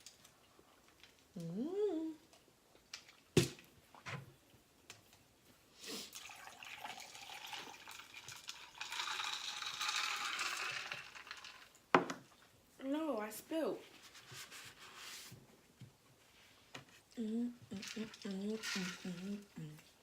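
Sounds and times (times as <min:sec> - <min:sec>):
drink pouring into a cup: 0:06.1 - 0:11.8
drink spilling: 0:06.1 - 0:11.8.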